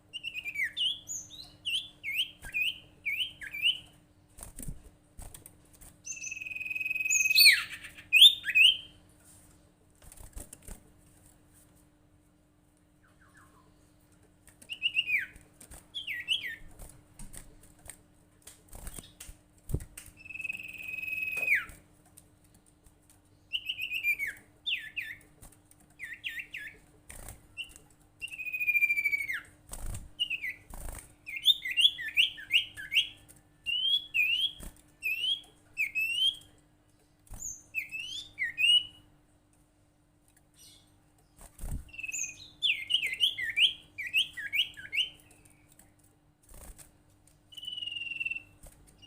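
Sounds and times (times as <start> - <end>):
faint steady hum: 0.0 - 49.0
bird whistled chirps: 6.1 - 8.9, 20.2 - 21.8, 28.2 - 29.5, 41.9 - 45.2, 47.5 - 48.6.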